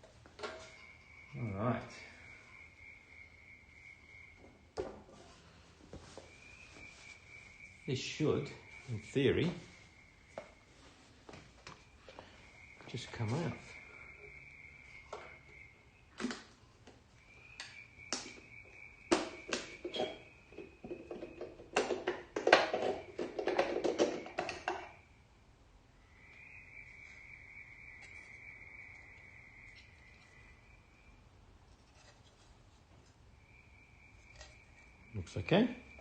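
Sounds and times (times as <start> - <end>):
faint high-pitched tone: 0.4 - 4.8, 12.2 - 16.2.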